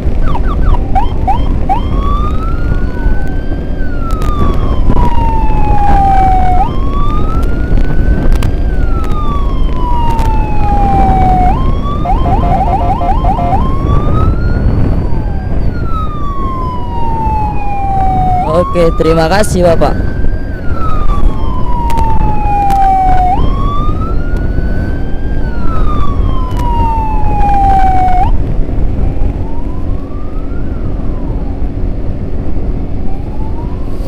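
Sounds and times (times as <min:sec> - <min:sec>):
loud steady low rumble: 0:00.0 - 0:34.0
electronic siren wailing and yelping: 0:00.2 - 0:28.4, 0:32.8 - 0:34.0.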